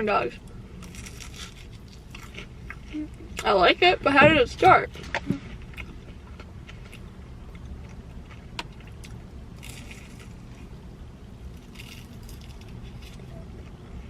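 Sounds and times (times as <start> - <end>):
steady low hum: 0.0 - 14.0
crisp crunch of food: 0.8 - 3.0, 5.6 - 10.8, 11.4 - 14.0.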